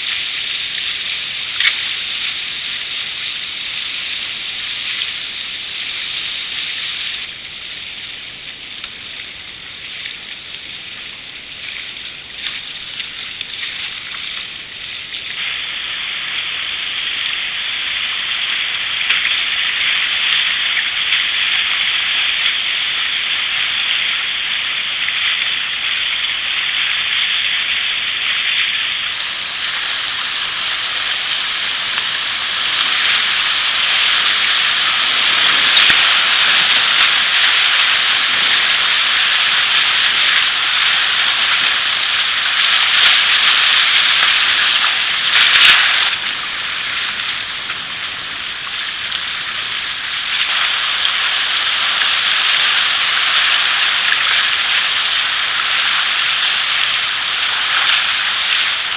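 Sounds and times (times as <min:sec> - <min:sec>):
river water rushing: 0:00.0 - 0:58.9
loud water splash: 0:15.4 - 0:58.9.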